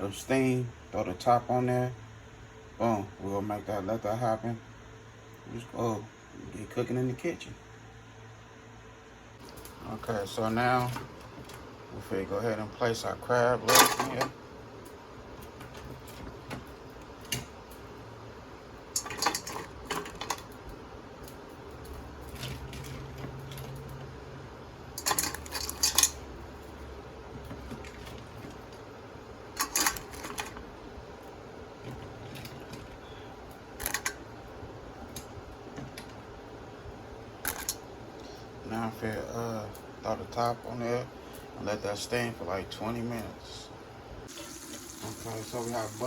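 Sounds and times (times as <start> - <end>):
crab shells clattering on metal: 18.9 - 20.5, 25.0 - 26.2, 29.6 - 30.6, 33.8 - 34.2, 37.4 - 37.8.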